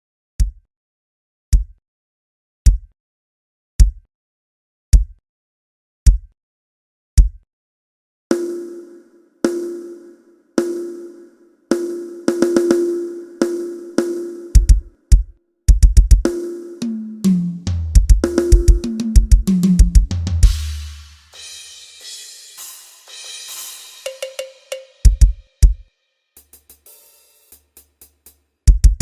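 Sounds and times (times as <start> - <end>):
bass drum: 0.4 - 0.6, 1.6 - 1.8, 2.7 - 2.9, 3.8 - 4.0, 5.0 - 5.2, 6.1 - 6.3, 7.2 - 7.4, 14.6 - 21.4, 25.1 - 25.8, 28.7 - 29.0
fast tom fill: 8.3 - 29.0
snare drum hits: 16.2 - 25.8
crash cymbal: 20.4 - 27.6.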